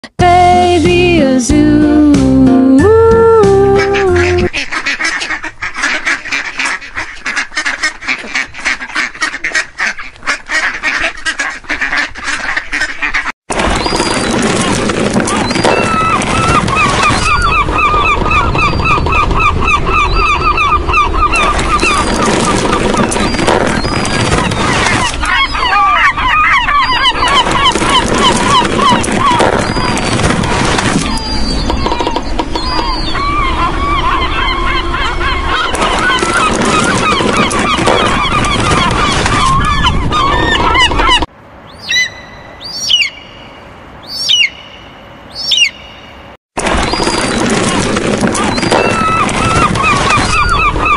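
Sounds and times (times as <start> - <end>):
flamingos honking: 3.6 - 13.3, 13.9 - 41.3, 48.4 - 50.9
gull calls: 15.2 - 43.3, 44.1 - 44.6, 45.4 - 45.9, 48.3 - 50.9.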